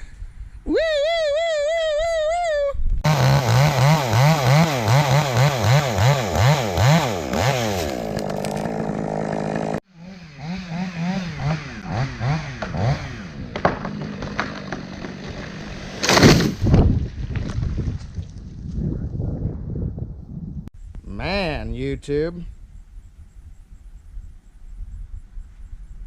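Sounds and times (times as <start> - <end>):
chainsaw revving: 3.1 - 16.5.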